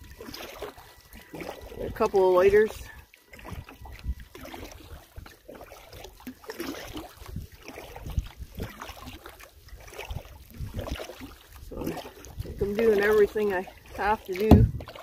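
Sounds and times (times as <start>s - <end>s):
paddle splashing through water: 0.0s - 15.0s
water lapping against hull: 0.0s - 15.0s.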